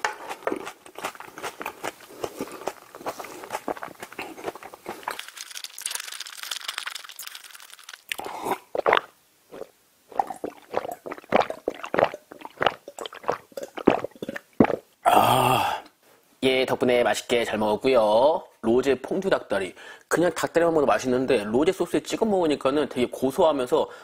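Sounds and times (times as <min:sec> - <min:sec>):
wet chewing and crunching: 0:00.0 - 0:14.8
gulping a drink: 0:08.1 - 0:15.9.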